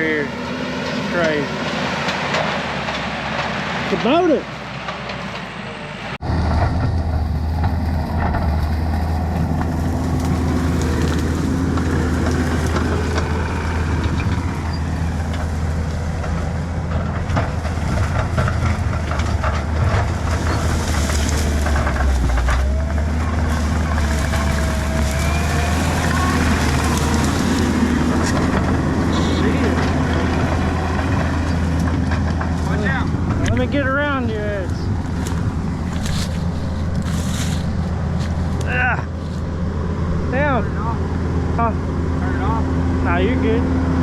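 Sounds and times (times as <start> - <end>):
diesel engine under load: 0.0 - 44.0
branches cracking and snapping: 6.4 - 33.7, 34.6 - 39.6.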